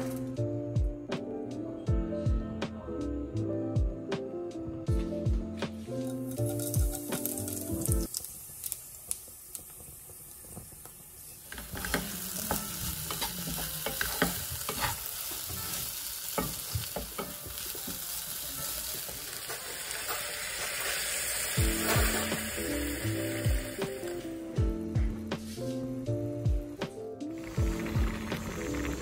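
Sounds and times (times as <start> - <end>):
background music: 0.0 - 8.2, 11.6 - 29.0
food sizzling in a wok: 5.8 - 24.6, 25.4 - 29.0
seeds sizzling in hot oil: 6.0 - 24.6, 27.3 - 29.0
water hissing in hot pan: 6.1 - 24.6, 27.3 - 29.0
wooden spatula scraping: 11.5 - 15.8.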